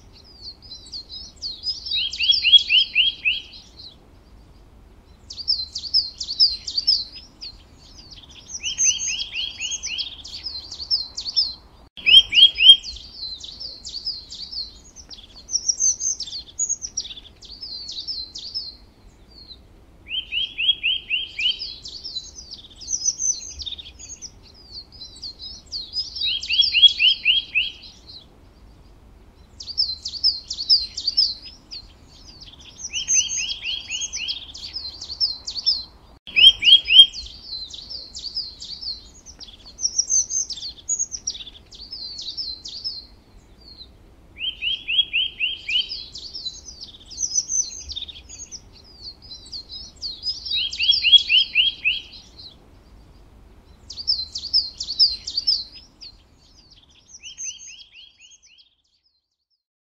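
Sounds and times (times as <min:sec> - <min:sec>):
songbirds chirping: 0:00.0 - 0:59.6
bird trilling: 0:07.9 - 0:14.6, 0:26.0 - 0:28.0, 0:29.6 - 0:39.1, 0:44.4 - 0:48.8, 0:49.5 - 0:52.5.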